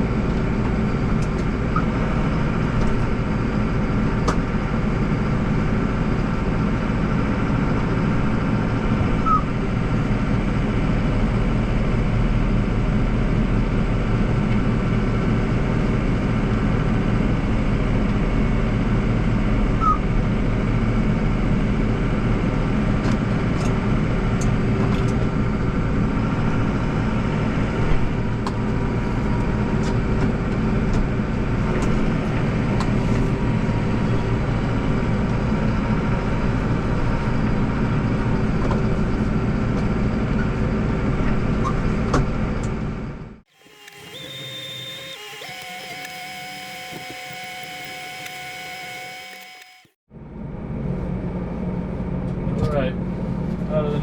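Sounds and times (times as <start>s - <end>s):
snowblower turning: 43.5s - 50.0s.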